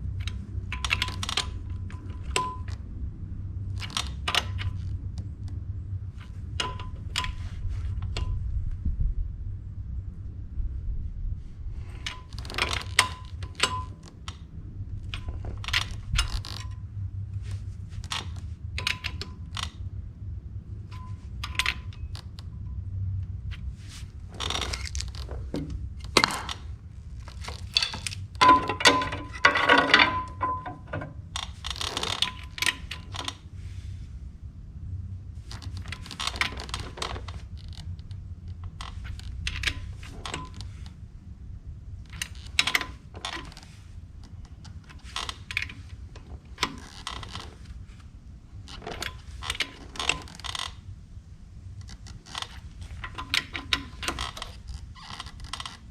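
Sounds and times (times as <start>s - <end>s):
steady low hum: 0.0s - 55.9s
wrench clinking on metal nuts: 27.4s - 31.2s.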